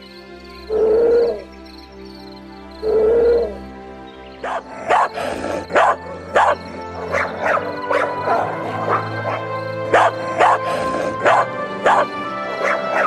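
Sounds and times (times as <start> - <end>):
background music: 0.0 - 13.0
animal barking: 4.4 - 13.0.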